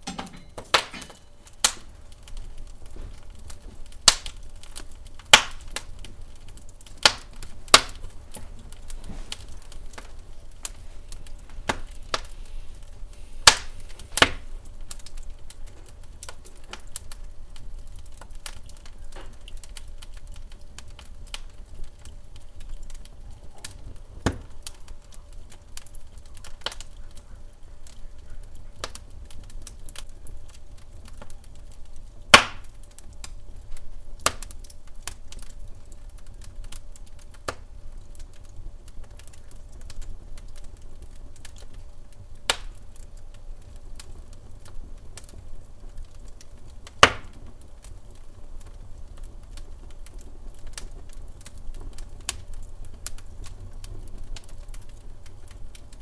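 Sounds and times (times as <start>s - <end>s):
sharp loud pops of fire: 0.0s - 6.1s, 6.9s - 12.4s, 13.4s - 15.2s, 23.6s - 24.8s, 32.3s - 32.7s, 42.5s - 42.8s, 46.9s - 47.4s
low fire rumble: 0.0s - 56.0s
wood fire crackling: 0.0s - 56.0s.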